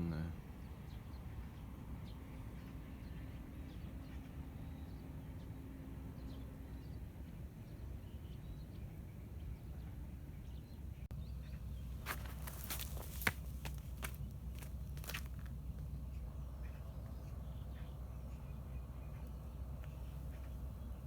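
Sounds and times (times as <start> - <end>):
steady low rumble: 11.0 - 21.0.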